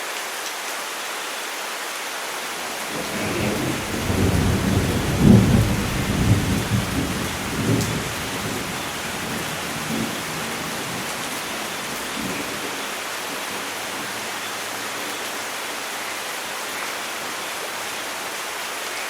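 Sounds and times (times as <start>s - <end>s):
steady rain: 0.0s - 19.0s
thunder rumbling: 2.7s - 14.8s.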